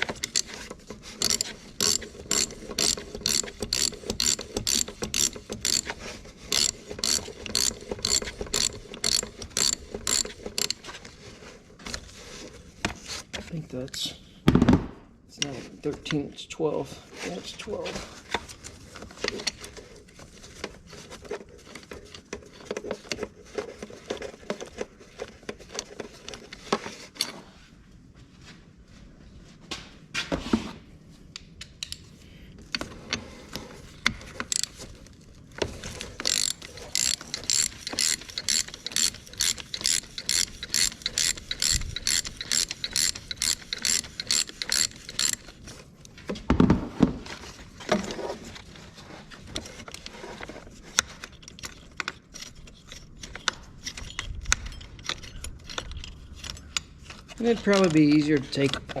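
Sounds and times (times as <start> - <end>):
socket ratchet clicking: 1.2 - 5.9, 6.5 - 10.8, 36.2 - 45.4.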